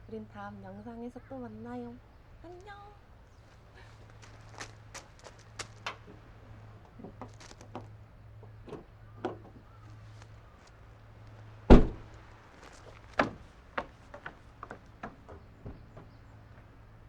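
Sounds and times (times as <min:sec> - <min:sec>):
light knocks and clicks: 0:04.2 - 0:10.4, 0:11.3 - 0:16.8
heavy thump: 0:11.7 - 0:16.1.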